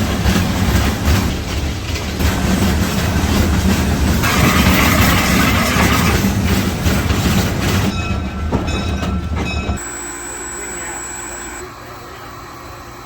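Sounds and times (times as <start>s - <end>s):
steam locomotive chugging: 0.0s - 13.0s
steam hiss: 3.8s - 6.6s.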